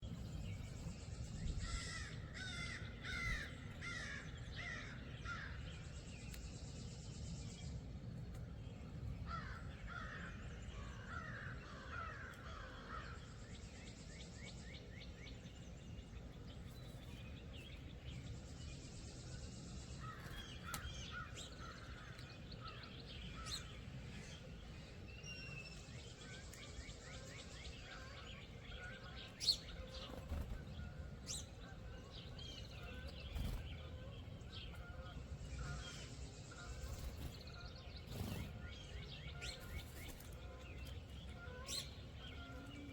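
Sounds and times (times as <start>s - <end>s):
low outdoor rumble: 0.0s - 42.9s
crows cawing: 1.7s - 5.6s, 11.0s - 13.2s.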